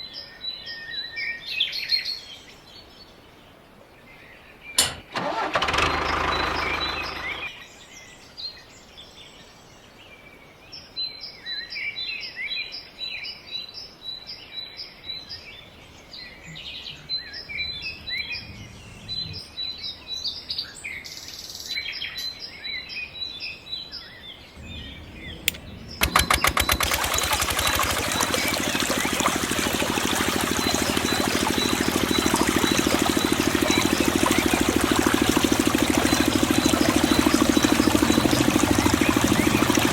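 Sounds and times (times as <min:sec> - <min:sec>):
small water pump motor running: 0:04.8 - 0:07.5, 0:24.6 - 0:39.9
birds chirping: 0:16.0 - 0:20.6, 0:24.2 - 0:39.9.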